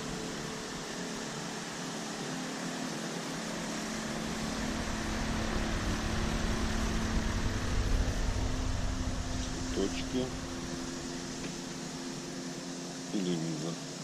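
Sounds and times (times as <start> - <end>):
room ventilation hum: 0.0 - 14.0
deep rumble: 3.6 - 12.4.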